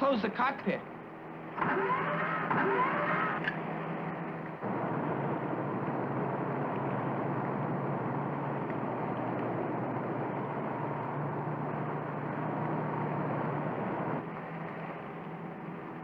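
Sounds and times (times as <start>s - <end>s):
cartoon race car engine: 1.6s - 3.6s.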